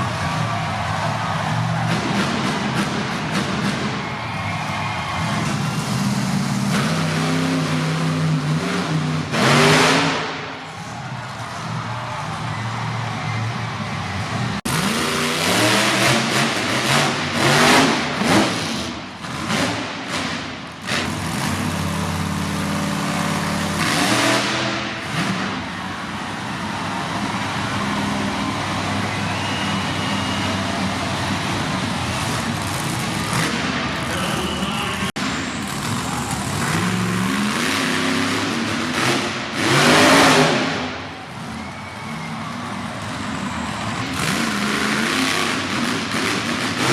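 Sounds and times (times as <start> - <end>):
truck engine revving: 0.0 - 46.9.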